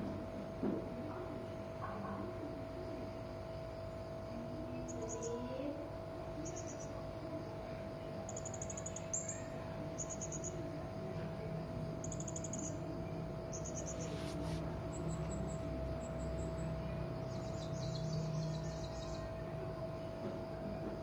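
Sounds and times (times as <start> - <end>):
steady low hum: 0.0 - 21.0
parrot chirping trills: 8.3 - 10.6, 12.0 - 12.8, 13.5 - 14.2.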